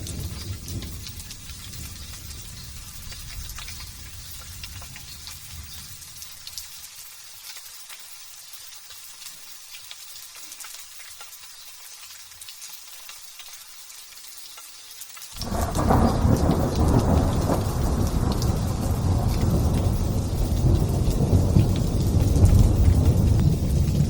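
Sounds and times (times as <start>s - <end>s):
low rumble of thunder: 0.0s - 6.0s, 15.4s - 24.0s
light drizzle hissing: 0.0s - 24.0s
raindrop ticks: 0.0s - 24.0s.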